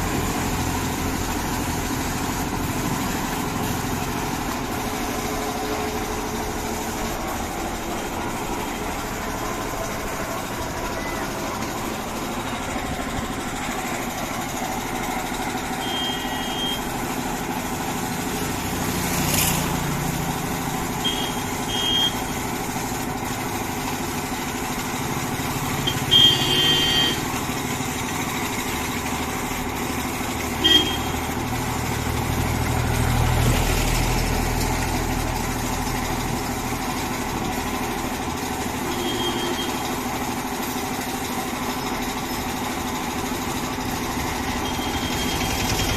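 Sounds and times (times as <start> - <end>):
steady mechanical hum: 0.0 - 45.9
vehicles rumbling: 0.0 - 45.9
short high beeps: 15.8 - 16.9.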